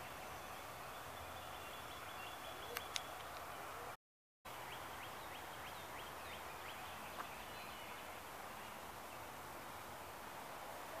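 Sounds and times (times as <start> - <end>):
bird chirping: 0.0 - 9.3
background hiss: 4.5 - 11.0.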